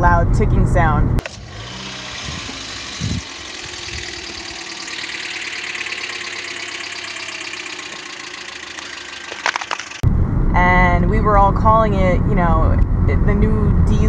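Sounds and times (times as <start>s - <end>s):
car engine idling with ticking: 3.2s - 10.0s.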